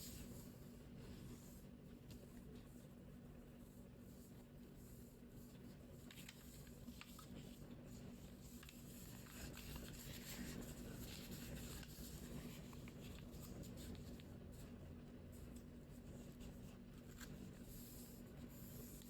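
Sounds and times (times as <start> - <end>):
low steady hum: 0.0 - 19.0
paper rustling and crinkling: 5.4 - 14.8, 15.4 - 19.0.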